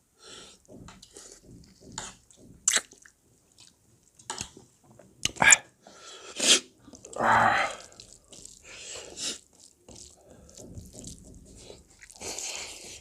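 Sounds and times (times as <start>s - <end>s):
wet chewing and slurping: 0.9s - 4.6s, 6.3s - 13.0s.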